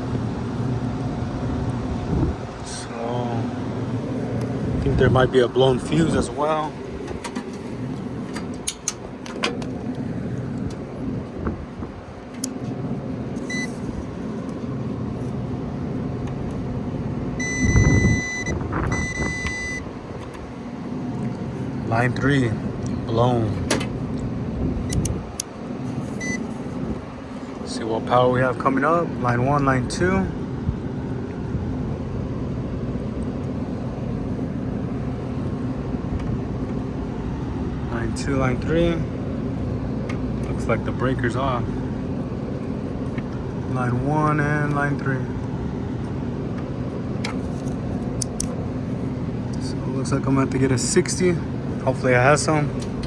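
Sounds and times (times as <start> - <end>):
low mechanical drone: 0.0 - 53.0
steady low hum: 0.0 - 53.0
multimeter continuity beeps: 13.4 - 13.8, 17.4 - 19.9, 26.2 - 26.5.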